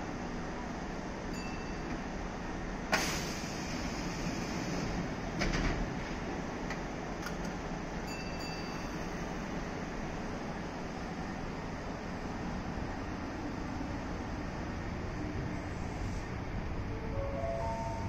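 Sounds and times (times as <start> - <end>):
train rumbling: 0.0 - 18.0
faint short high tone: 17.0 - 18.0.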